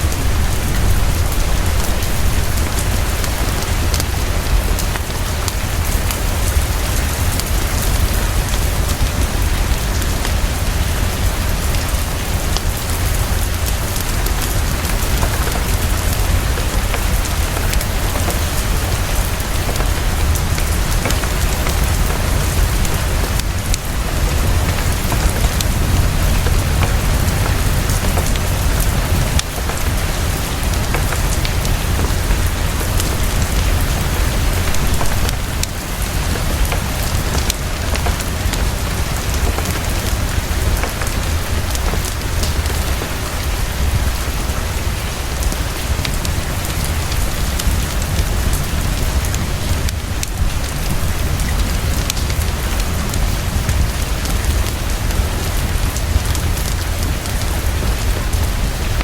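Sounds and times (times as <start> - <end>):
heavy rain: 0.0 - 59.0
fireplace crackling: 12.3 - 44.0.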